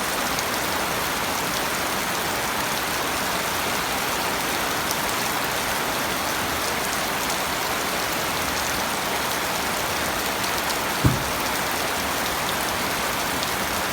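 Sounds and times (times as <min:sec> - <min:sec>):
short low thump: 0:11.0 - 0:11.7.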